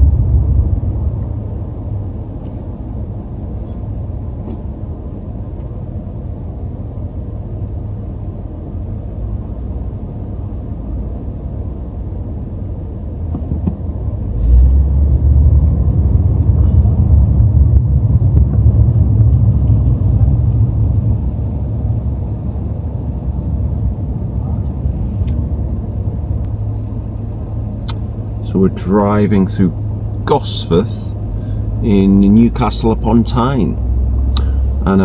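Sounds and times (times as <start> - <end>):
car engine and road rumble: 0.0 - 35.0.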